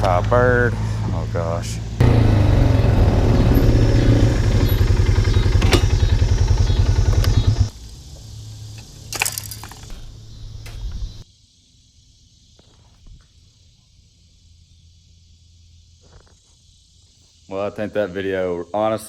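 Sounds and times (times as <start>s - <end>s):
atv engine running: 0.0s - 7.7s.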